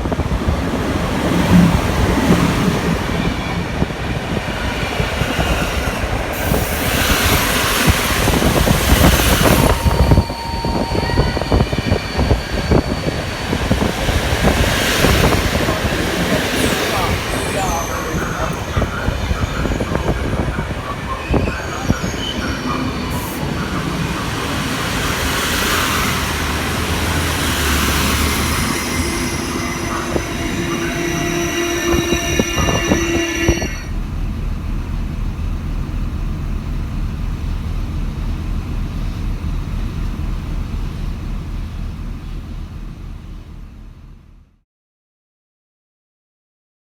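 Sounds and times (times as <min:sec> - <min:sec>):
train wheels squealing: 0:03.1 - 0:34.0
low steady throb: 0:33.8 - 0:44.5.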